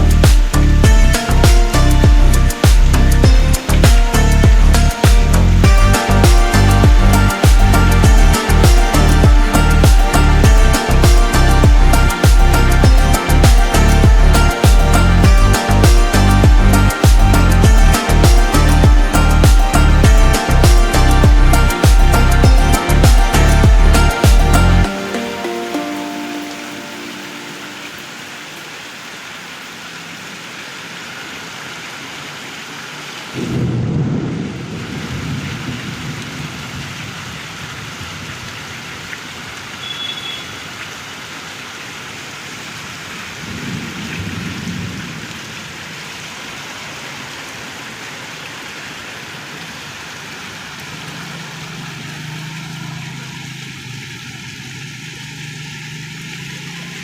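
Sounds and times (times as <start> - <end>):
heavy rain falling: 0.0 - 57.0
thunder rumbling: 33.4 - 38.5, 43.4 - 45.6.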